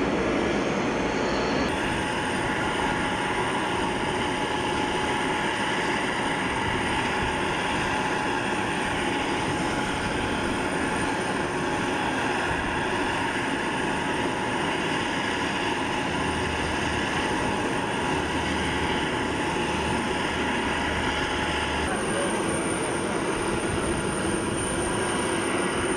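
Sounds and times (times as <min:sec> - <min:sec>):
jet turbine whine: 0:00.0 - 0:25.9.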